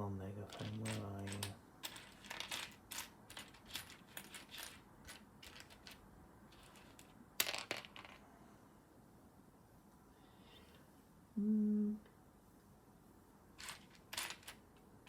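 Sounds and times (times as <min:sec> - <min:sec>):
plastic pieces clicking and clattering: 0:00.5 - 0:08.2, 0:13.6 - 0:14.6.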